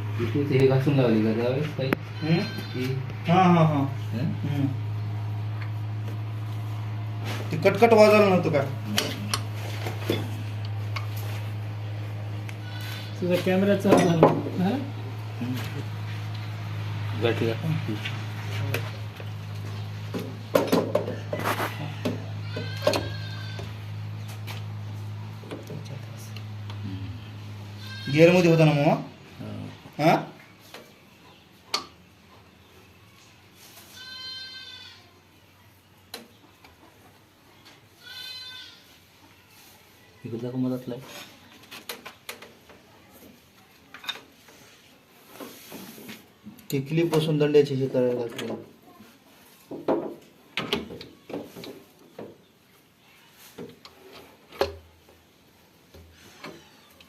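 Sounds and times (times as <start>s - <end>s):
animal bleating: 2.0s - 3.9s, 12.5s - 13.4s, 21.2s - 24.0s, 26.8s - 29.1s, 33.8s - 35.2s, 38.0s - 39.0s
metal tools knocking and scraping: 8.9s - 11.1s, 13.7s - 14.6s, 20.1s - 23.7s.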